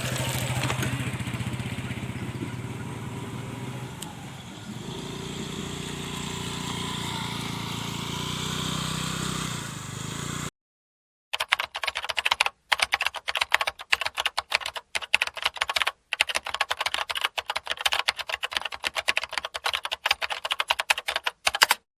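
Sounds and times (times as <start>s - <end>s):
engine rumble: 0.0s - 10.5s
keyboard typing clicks: 11.4s - 21.9s.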